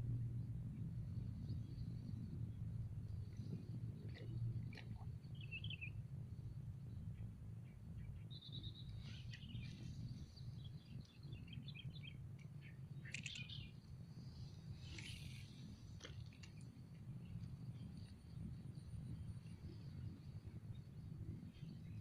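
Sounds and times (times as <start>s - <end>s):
low steady rumble: 0.0s - 22.0s
birds chirping and trilling: 7.6s - 13.9s.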